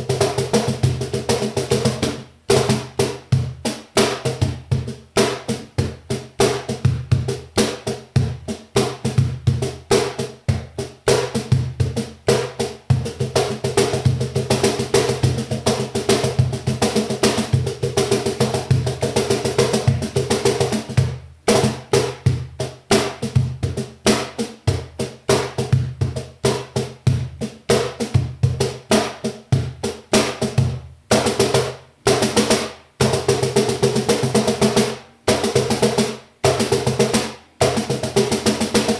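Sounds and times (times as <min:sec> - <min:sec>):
cajon played by hand: 0:00.0 - 0:38.9.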